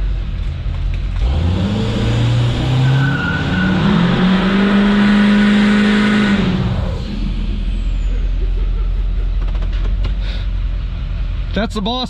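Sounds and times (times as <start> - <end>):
diesel truck engine revving: 0.0 - 11.6
tires squealing: 1.2 - 10.0.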